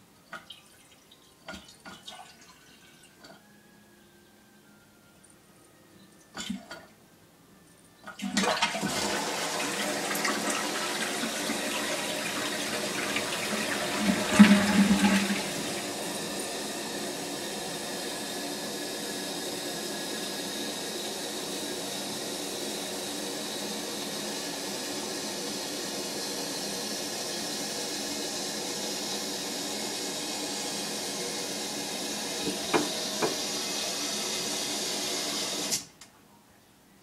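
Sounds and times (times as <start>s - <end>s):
toilet fill valve hissing: 8.2s - 35.9s.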